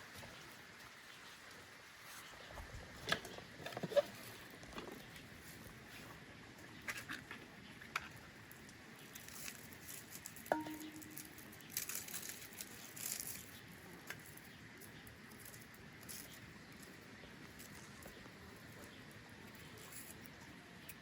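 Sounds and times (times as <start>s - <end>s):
small clicks and rustles: 0.0s - 21.0s
sharp ringing clink: 10.5s - 11.4s.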